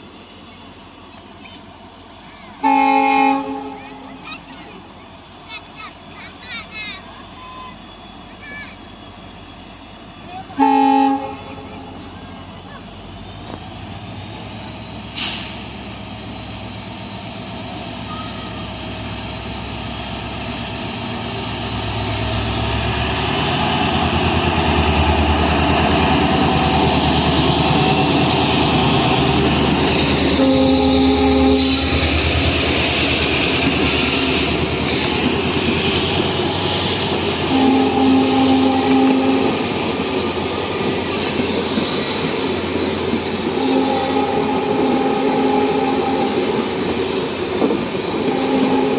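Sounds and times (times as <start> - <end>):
train passing at high speed: 0.0 - 48.9
train horn blast: 2.6 - 4.1, 10.6 - 11.9, 30.2 - 32.1, 37.5 - 39.6, 43.5 - 46.6, 48.2 - 48.9.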